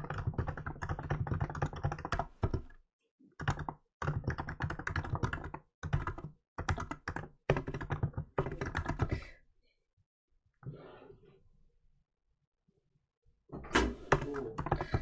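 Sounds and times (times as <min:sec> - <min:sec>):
keyboard typing: 0:00.0 - 0:02.7, 0:03.4 - 0:09.3, 0:14.0 - 0:15.0.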